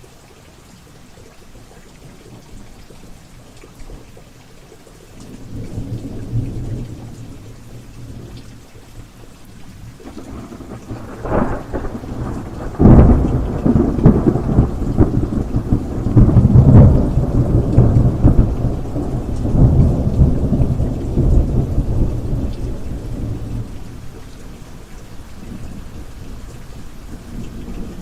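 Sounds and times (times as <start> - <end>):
steady rain: 0.0 - 28.0
thunder rumbling: 10.0 - 24.7.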